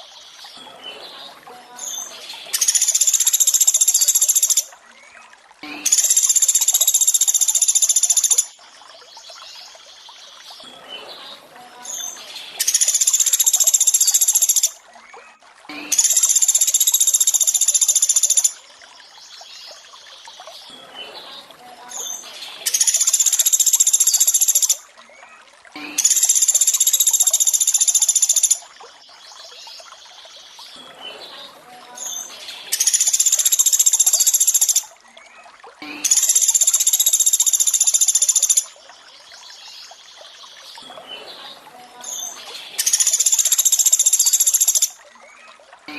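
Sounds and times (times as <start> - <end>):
running water: 0.0 - 45.9.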